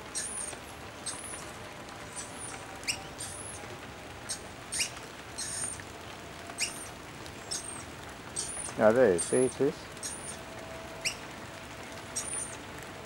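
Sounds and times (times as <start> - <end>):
rain hiss: 0.0 - 13.0
small birds squeaky calls: 0.1 - 5.9, 6.5 - 11.2, 12.0 - 12.7.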